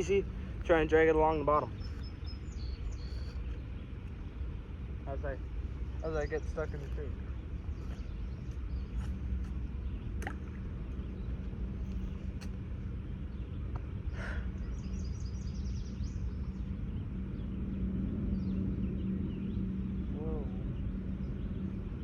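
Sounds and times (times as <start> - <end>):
low machinery hum: 0.0 - 22.0
high bird chirps: 1.8 - 3.6.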